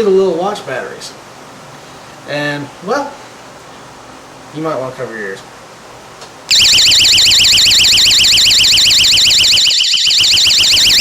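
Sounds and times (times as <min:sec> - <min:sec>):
warbling electronic alarm: 0:06.5 - 0:11.0.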